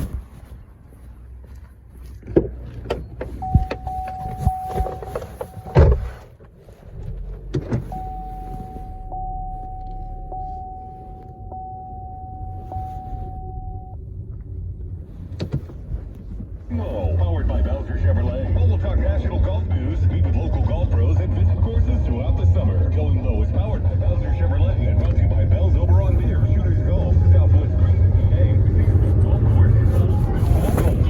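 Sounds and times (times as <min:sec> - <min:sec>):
low steady rumble: 0:00.0 - 0:31.0
knocks and clicks inside car: 0:02.2 - 0:06.2, 0:07.0 - 0:10.4, 0:13.4 - 0:16.5
steady electronic tone: 0:07.9 - 0:14.0.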